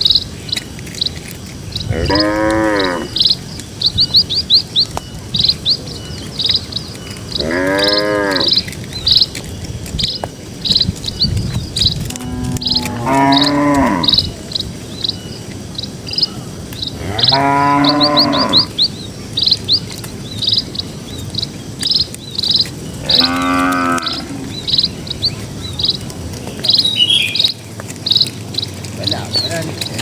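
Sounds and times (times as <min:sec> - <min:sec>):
cows mooing: 0:01.8 - 0:03.4, 0:07.3 - 0:08.8, 0:12.1 - 0:14.4, 0:17.0 - 0:18.9, 0:22.8 - 0:25.1.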